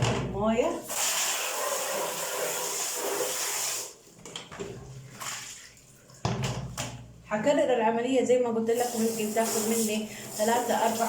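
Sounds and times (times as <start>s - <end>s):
sloshing and handling sounds: 4.0s - 7.3s.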